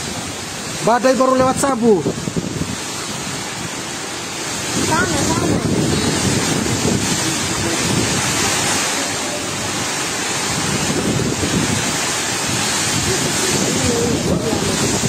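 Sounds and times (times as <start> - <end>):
strong wind buffeting microphone: 1.4 - 15.0.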